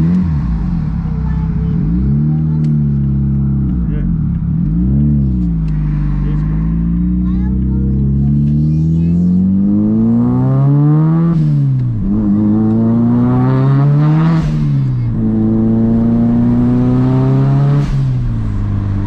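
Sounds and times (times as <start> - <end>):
turbocharged engine accelerating: 0.0 - 19.0.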